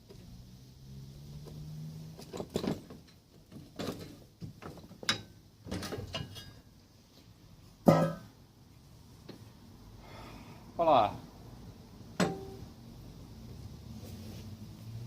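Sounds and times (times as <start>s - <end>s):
metallic clunks and scrapes: 2.2s - 6.7s.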